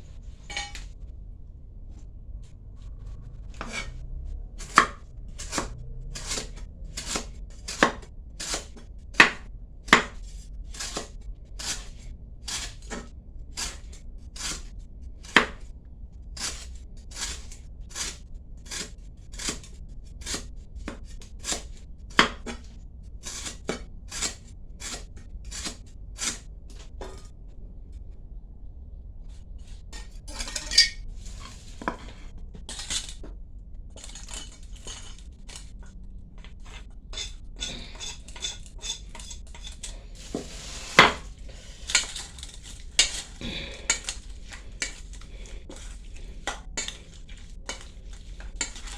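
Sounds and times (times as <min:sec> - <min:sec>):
knife chopping on cutting board: 0:04.6 - 0:10.2, 0:15.2 - 0:15.6, 0:20.3 - 0:22.7, 0:37.9 - 0:41.3.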